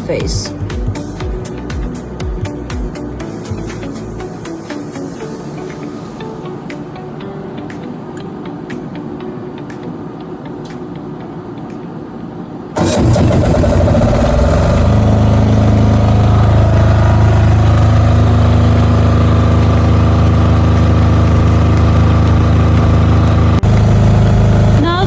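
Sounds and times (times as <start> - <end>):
soft background music: 0.0 - 12.6
diesel generator starting and running: 12.7 - 25.0.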